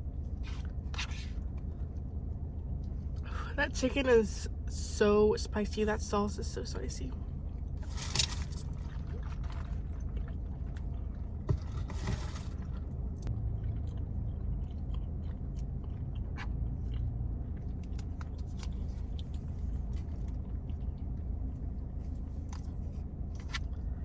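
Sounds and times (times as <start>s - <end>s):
steady low hum: 0.0s - 24.0s
person chewing crunchy food: 7.8s - 21.6s.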